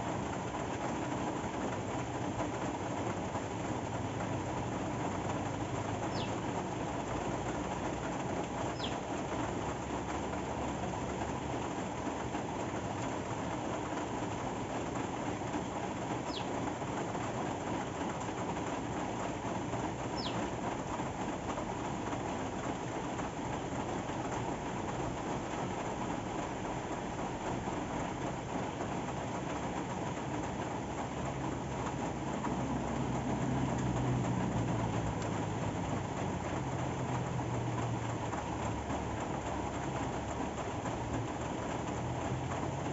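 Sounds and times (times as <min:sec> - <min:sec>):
steady rain falling: 0:00.0 - 0:42.9
bird chirping: 0:06.1 - 0:06.4, 0:08.7 - 0:09.0, 0:16.2 - 0:16.6, 0:20.1 - 0:20.5.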